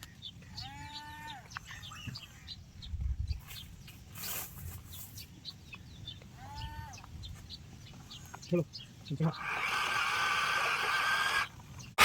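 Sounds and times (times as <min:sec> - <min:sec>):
small birds chirping: 0:00.0 - 0:12.0
drawn-out animal call: 0:09.3 - 0:11.6.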